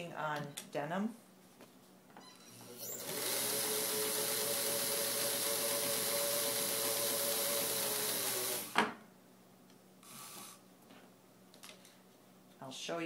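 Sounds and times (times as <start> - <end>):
sewing machine running: 2.6 - 8.8.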